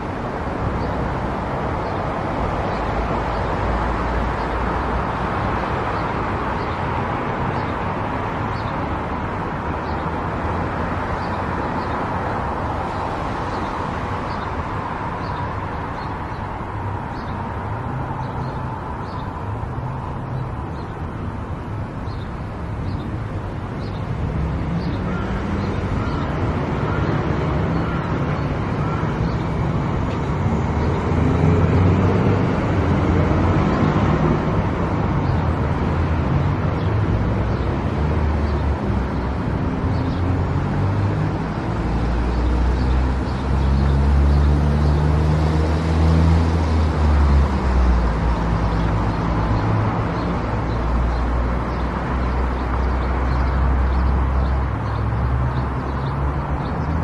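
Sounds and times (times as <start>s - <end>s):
tyre and road noise: 0.0s - 57.0s.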